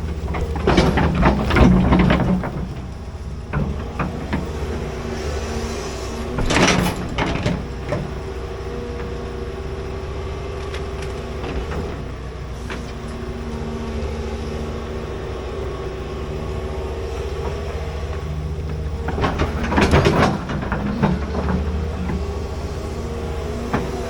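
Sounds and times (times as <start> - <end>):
loud scraping and clanking: 0.0 - 2.9, 3.5 - 8.3, 17.0 - 24.0
excavator diesel engine running: 0.0 - 24.0.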